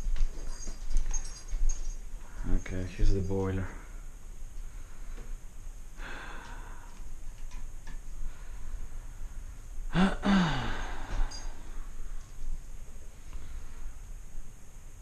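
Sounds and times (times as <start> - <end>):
faint breath: 3.6 - 7.1, 8.2 - 12.4
man sighing: 6.0 - 7.0, 9.9 - 11.8.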